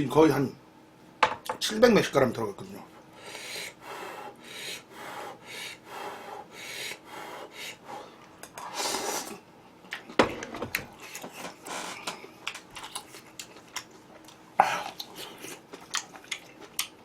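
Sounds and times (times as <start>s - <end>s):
crisp chewing: 11.0s - 17.0s.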